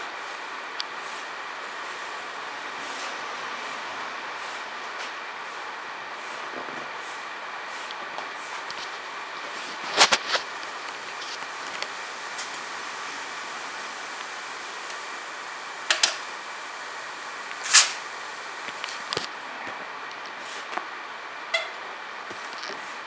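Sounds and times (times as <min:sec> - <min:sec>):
background hiss: 0:00.0 - 0:19.4
sharp clicks and knocks: 0:15.9 - 0:16.2.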